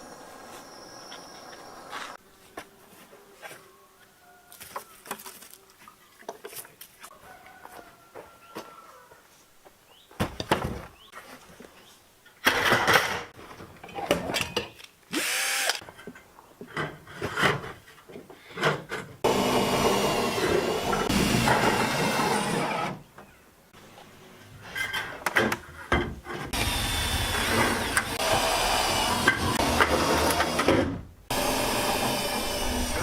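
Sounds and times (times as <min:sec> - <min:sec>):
power drill running: 0:15.2 - 0:15.8, 0:19.2 - 0:23.0, 0:26.6 - 0:30.7, 0:31.3 - 0:33.0.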